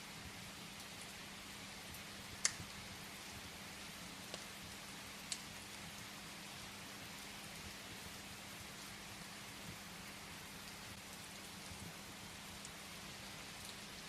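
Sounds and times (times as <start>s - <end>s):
rain hissing against window: 0.0s - 14.0s
firewood crackling: 0.7s - 5.9s, 10.6s - 14.0s.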